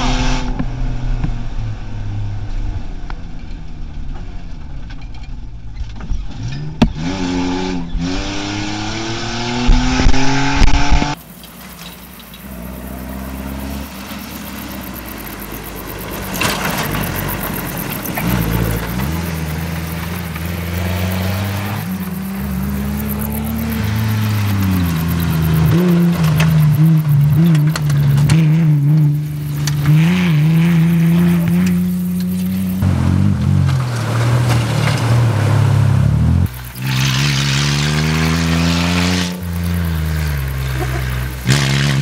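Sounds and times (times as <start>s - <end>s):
off-road engine revving: 0.0s - 4.6s, 5.9s - 42.0s
car jolting over bumps: 11.2s - 37.4s.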